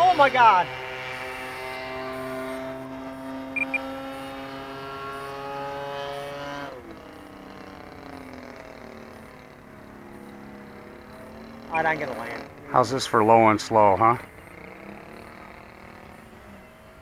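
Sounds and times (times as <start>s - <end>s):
model airplane motor drone: 0.0s - 17.0s
short high beeps: 3.6s - 3.9s.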